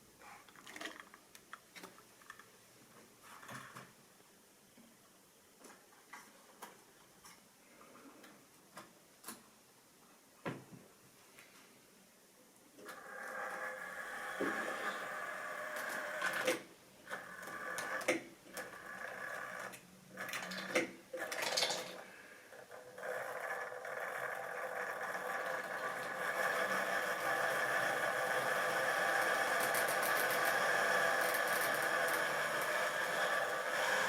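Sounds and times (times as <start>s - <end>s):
model train motor whirring: 12.9s - 20.7s, 22.6s - 34.0s.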